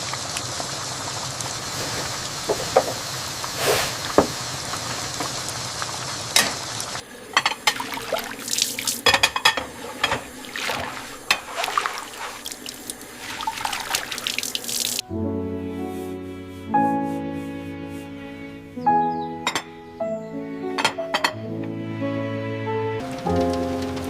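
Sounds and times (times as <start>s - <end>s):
tap water running into sink: 1.7s - 15.0s.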